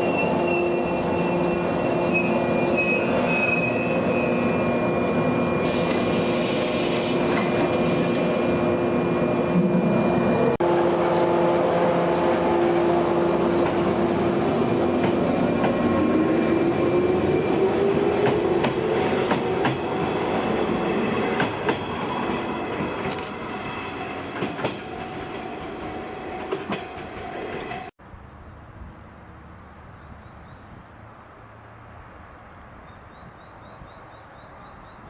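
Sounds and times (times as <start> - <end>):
electric train motor tone: 0.0 - 21.2.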